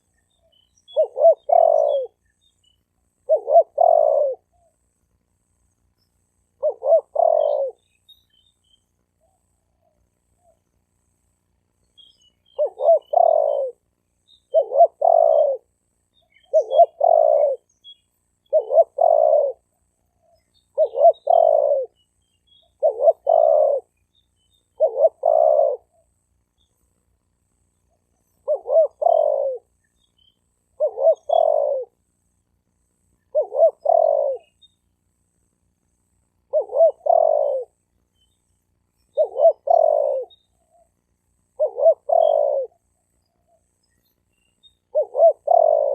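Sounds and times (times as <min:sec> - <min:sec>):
dove cooing: 0:00.0 - 0:02.2, 0:03.2 - 0:04.8, 0:06.6 - 0:07.9, 0:12.5 - 0:13.8, 0:14.4 - 0:17.7, 0:18.4 - 0:22.0, 0:22.6 - 0:24.0, 0:24.6 - 0:26.1, 0:27.9 - 0:29.8, 0:30.7 - 0:32.0, 0:33.2 - 0:34.7, 0:36.4 - 0:37.8, 0:39.0 - 0:43.7, 0:44.8 - 0:45.9.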